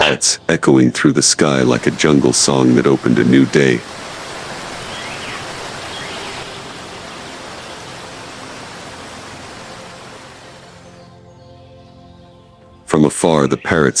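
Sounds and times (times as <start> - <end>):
rushing water noise: 0.0 - 11.3
faint chirps: 0.0 - 11.8.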